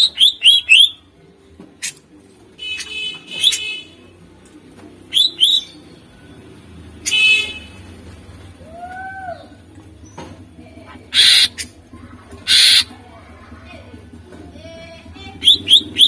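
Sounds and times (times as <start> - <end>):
bird harsh scratchy song: 0.0 - 1.0, 2.6 - 3.9, 5.1 - 6.0, 11.1 - 11.8, 12.4 - 13.0, 15.2 - 16.0
rising and falling bird whistle: 0.0 - 1.0, 5.1 - 5.8, 15.4 - 16.0.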